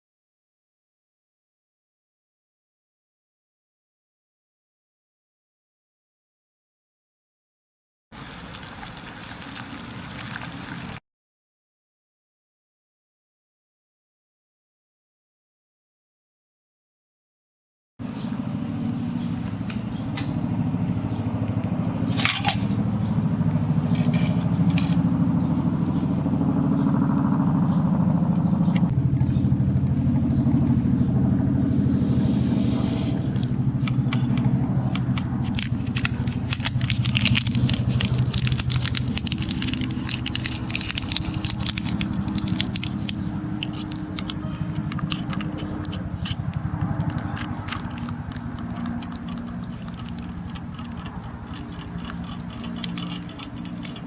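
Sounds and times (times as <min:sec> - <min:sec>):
stove fire rumble: 0:08.2 - 0:11.0, 0:18.0 - 0:26.5, 0:28.0 - 0:54.0
wood fire crackling and popping: 0:35.1 - 0:54.0.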